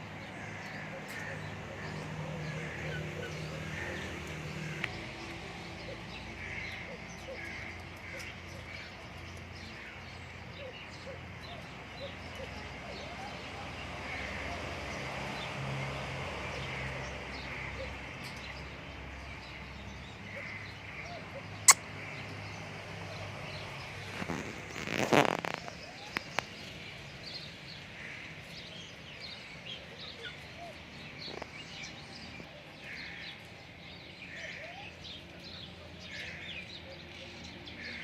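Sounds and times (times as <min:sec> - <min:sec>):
birds chirping: 0:16.6 - 0:38.0.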